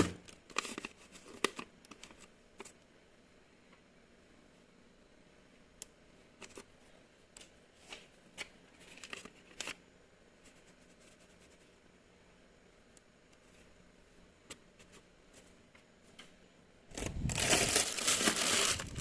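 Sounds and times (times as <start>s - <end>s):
rustling: 16.9s - 19.0s.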